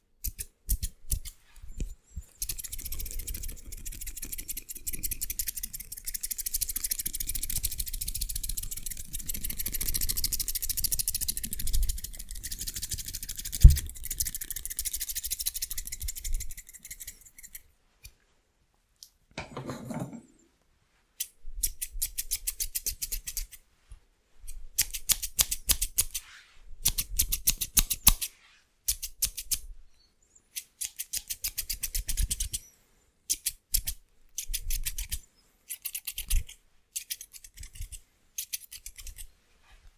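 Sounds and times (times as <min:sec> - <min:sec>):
scissors snipping fast: 0:00.2 - 0:01.4, 0:24.8 - 0:26.2, 0:26.8 - 0:28.3, 0:33.3 - 0:39.3.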